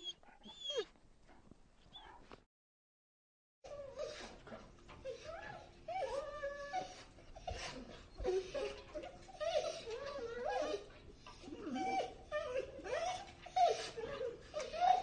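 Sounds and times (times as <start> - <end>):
dog whining: 0.0 - 0.9, 5.0 - 15.0.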